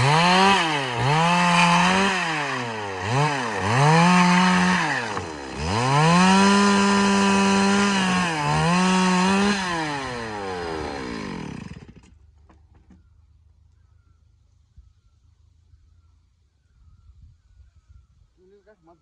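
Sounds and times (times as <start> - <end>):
chainsaw cutting timber: 0.0 - 12.2.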